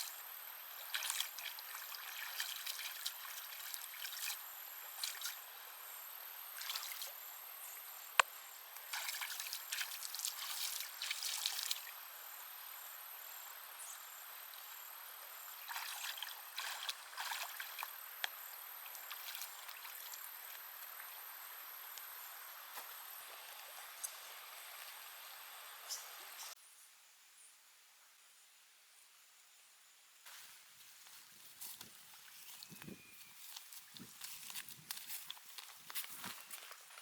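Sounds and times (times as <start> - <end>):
water trickling and splashing: 0.0 - 5.5, 6.5 - 7.2, 8.8 - 12.0, 14.4 - 21.6.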